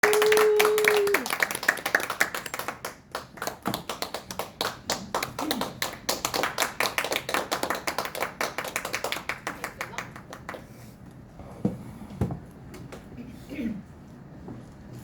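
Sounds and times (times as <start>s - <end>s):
audience clapping: 0.0s - 10.7s.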